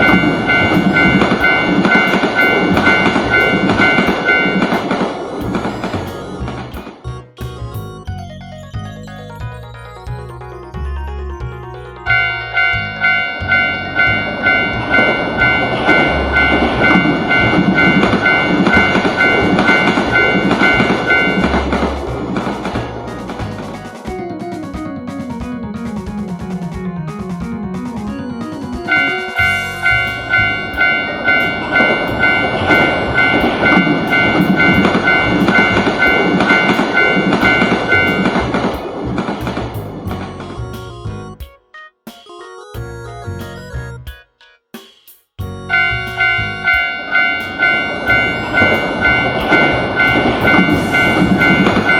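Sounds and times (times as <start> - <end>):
crossing bell two-tone chime: 0.0 - 6.6, 8.5 - 22.1, 28.8 - 38.5, 45.7 - 51.9
passing train rushing: 0.0 - 7.0, 12.0 - 40.5, 45.7 - 51.9.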